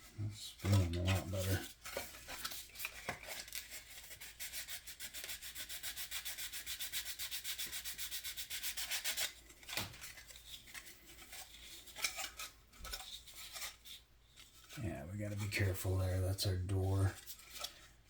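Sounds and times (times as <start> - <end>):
faint scratches: 0.1 - 9.4, 10.0 - 18.0
sandpaper rubbing back and forth: 3.6 - 9.4.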